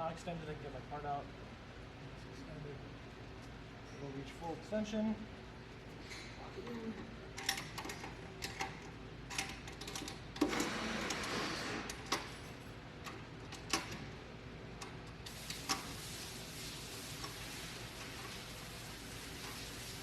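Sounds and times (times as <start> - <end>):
hiss: 15.3 - 20.0.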